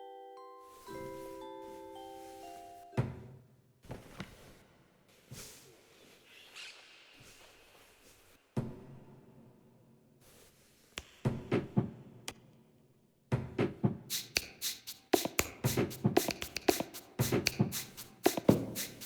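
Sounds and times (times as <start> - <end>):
dancer's taps and knocks: 15.2 - 19.0.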